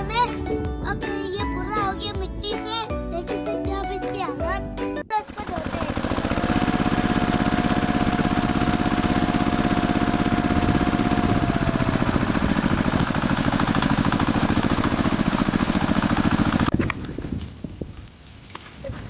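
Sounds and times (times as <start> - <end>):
small motor pulsing: 5.3 - 13.1.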